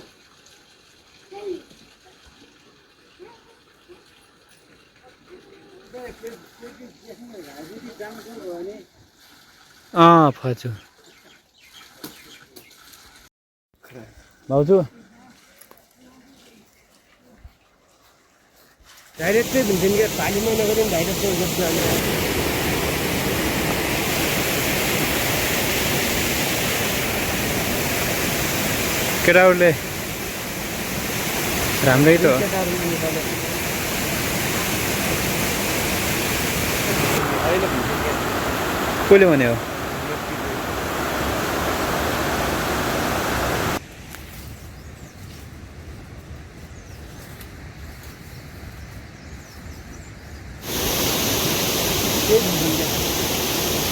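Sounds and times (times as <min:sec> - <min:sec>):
heavy rain hissing: 0:19.2 - 0:43.8, 0:50.6 - 0:53.9
rushing water: 0:19.2 - 0:43.8, 0:50.6 - 0:53.9.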